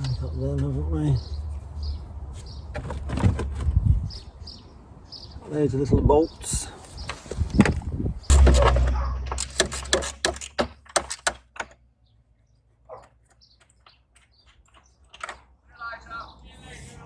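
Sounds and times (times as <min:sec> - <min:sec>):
heavy low rumble: 0:08.3 - 0:10.0.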